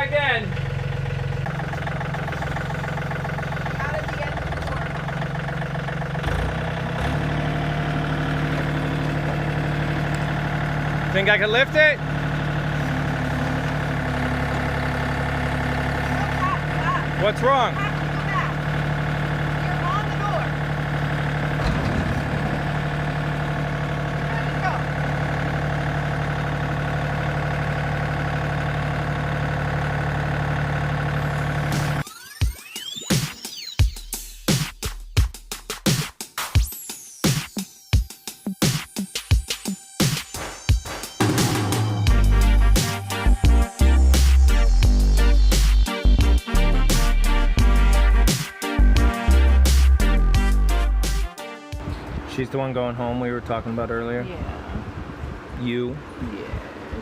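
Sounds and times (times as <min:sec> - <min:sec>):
engine knock: 0:00.0 - 0:11.4, 0:12.0 - 0:32.0
engine idling: 0:00.0 - 0:32.6, 0:40.0 - 0:55.6.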